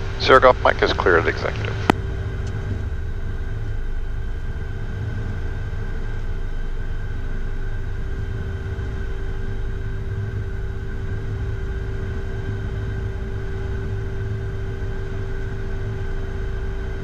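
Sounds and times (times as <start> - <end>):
jet engine low rumble: 0.0 - 17.0
turbofan whine: 0.0 - 17.0.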